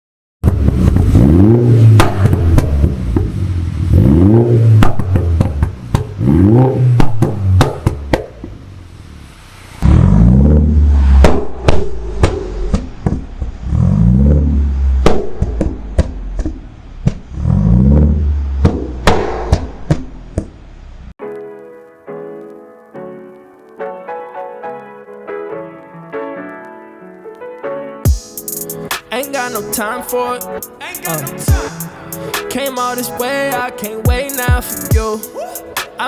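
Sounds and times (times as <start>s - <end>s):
exhaust cracks and pops: 0.4s - 9.0s, 10.4s - 20.6s
car engine revving: 0.4s - 19.1s.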